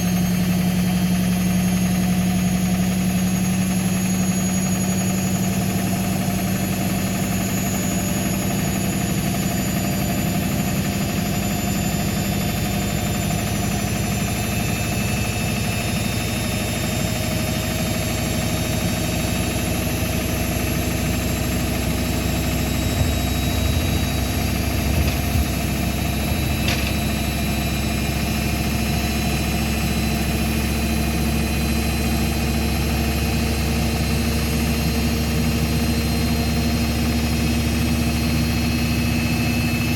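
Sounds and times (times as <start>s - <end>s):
washing machine spinning: 4.6s - 30.7s.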